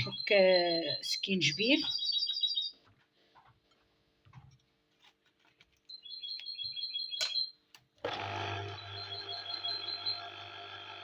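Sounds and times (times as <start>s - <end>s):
bird chirping trill: 0.0s - 2.8s, 5.9s - 7.6s, 8.7s - 10.4s.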